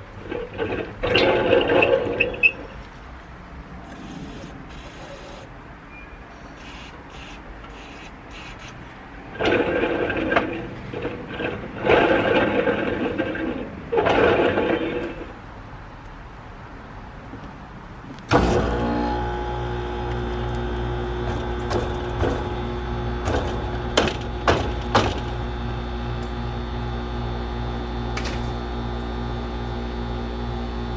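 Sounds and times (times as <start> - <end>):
fan motor scraping and grinding: 0.0 - 2.9, 7.7 - 15.4, 18.3 - 27.6.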